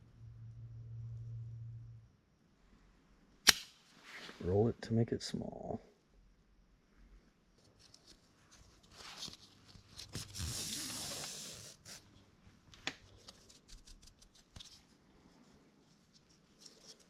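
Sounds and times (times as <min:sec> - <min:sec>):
sharp click: 0:03.4 - 0:03.8
rope rustling and rubbing: 0:07.6 - 0:17.0.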